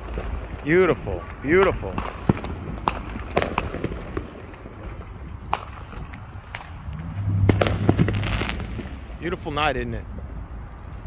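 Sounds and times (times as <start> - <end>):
distant fireworks bangs: 0.0 - 11.0
low steady rumble: 2.0 - 10.7.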